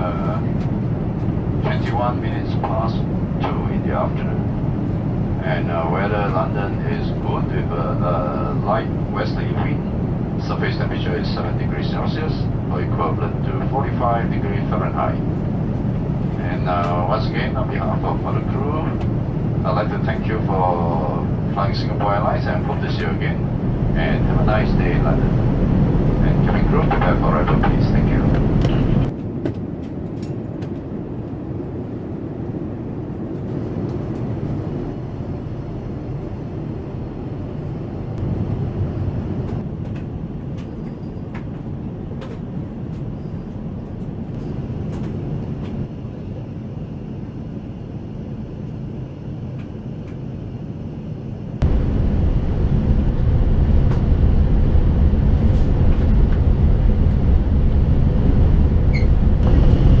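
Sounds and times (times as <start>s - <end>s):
aircraft cabin engine rumble: 0.0s - 60.0s.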